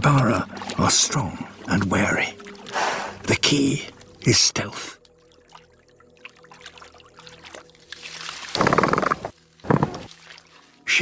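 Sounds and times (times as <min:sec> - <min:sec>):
rough pulsed animal call: 0:08.6 - 0:10.1.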